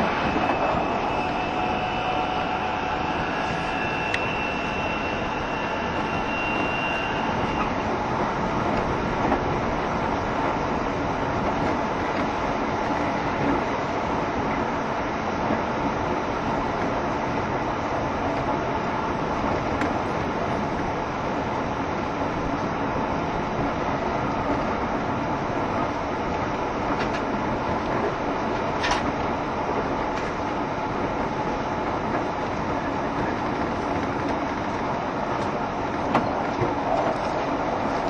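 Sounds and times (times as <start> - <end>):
train wheels rolling on rails: 0.0 - 38.0.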